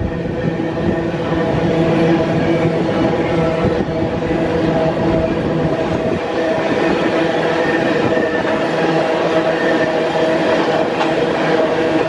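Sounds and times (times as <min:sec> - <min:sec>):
train rolling rumble: 0:00.0 - 0:12.0.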